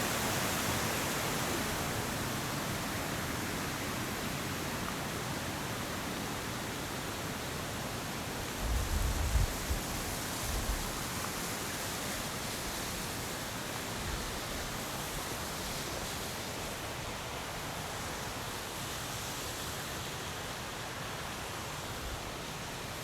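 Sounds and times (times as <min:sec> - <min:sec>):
flowing water rushing: 0:00.0 - 0:08.7.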